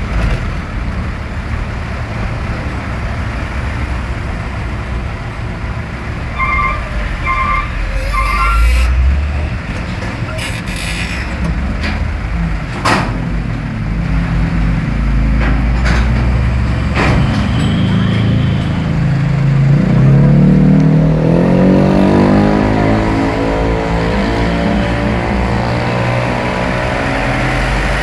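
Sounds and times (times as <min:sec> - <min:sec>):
heavy trucks passing: 0:00.0 - 0:28.0
short beeps: 0:17.2 - 0:20.3.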